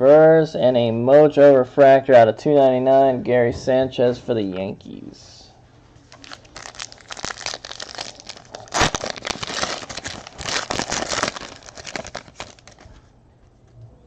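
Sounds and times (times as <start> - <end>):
foil wrapper crinkling and tearing: 6.1 - 12.9.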